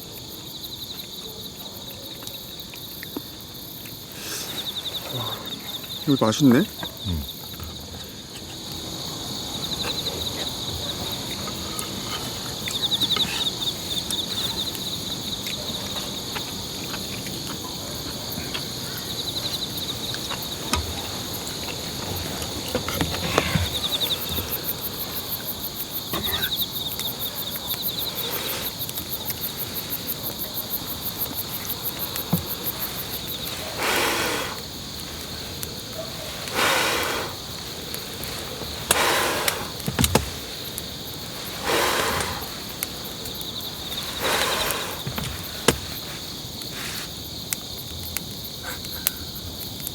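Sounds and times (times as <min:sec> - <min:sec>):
insects chirping and trilling: 0:00.0 - 0:49.9
light clicks and knocks: 0:39.8 - 0:40.4.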